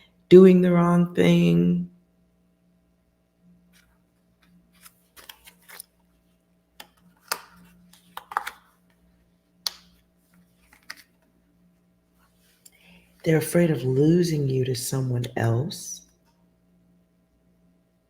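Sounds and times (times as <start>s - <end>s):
faint steady hum: 0.0s - 18.0s
cards clicking and rustling: 4.4s - 6.0s, 6.8s - 8.8s, 9.7s - 11.3s.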